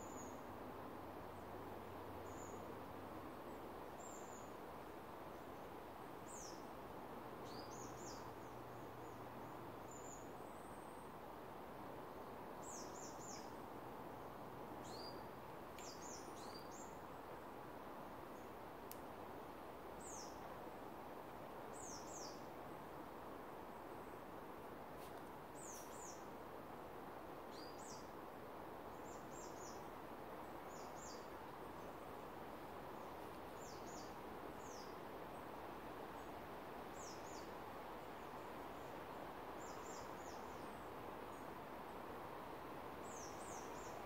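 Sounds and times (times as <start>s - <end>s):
steady background hiss: 0.0s - 44.0s
small birds calling: 25.0s - 26.3s, 43.0s - 44.0s.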